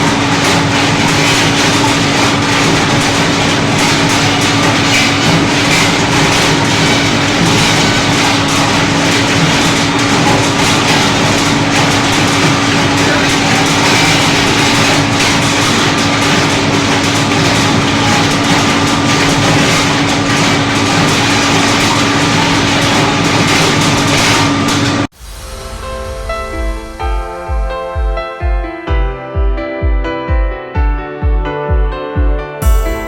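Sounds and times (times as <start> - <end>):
machine humming: 0.0 - 29.4.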